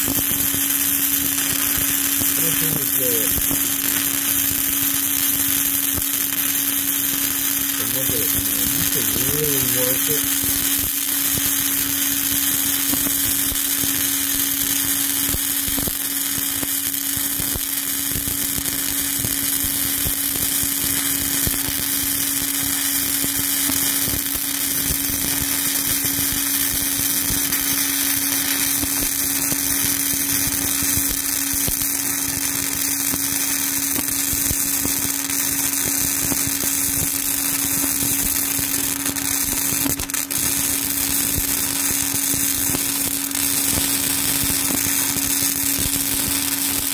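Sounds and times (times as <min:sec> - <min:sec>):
welding arc crackling hiss: 0:00.0 - 0:46.9
steady low hum: 0:07.7 - 0:10.6.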